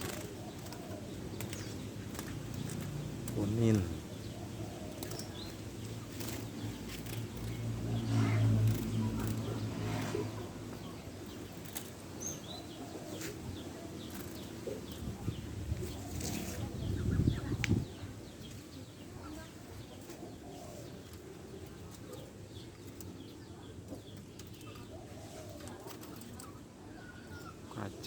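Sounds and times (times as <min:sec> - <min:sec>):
birds flapping wings: 0:00.0 - 0:12.3, 0:13.1 - 0:16.8, 0:23.9 - 0:26.6.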